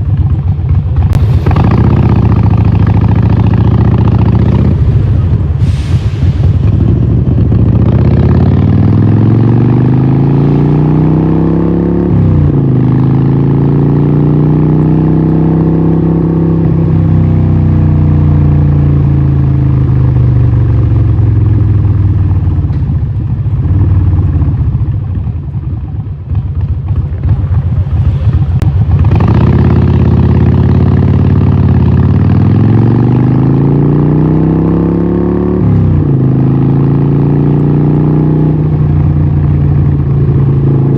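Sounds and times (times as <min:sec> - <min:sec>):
motorcycle engine revving through gears: 0:00.0 - 0:06.0, 0:06.6 - 0:40.9
exhaust crackling: 0:00.0 - 0:13.1.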